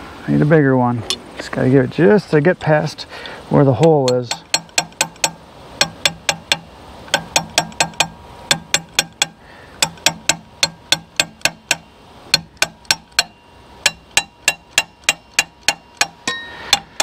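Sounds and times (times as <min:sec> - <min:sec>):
hammer tapping on metal: 0:03.8 - 0:17.0.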